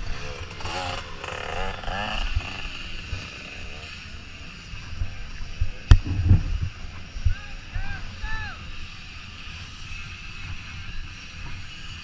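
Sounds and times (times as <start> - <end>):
dirt bike engines droning: 0.0 - 12.0
low buffeting thumps: 4.9 - 8.1.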